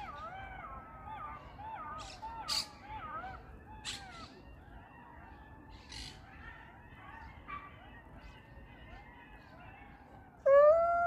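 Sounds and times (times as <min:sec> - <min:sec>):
jackals howling: 0:00.0 - 0:11.0.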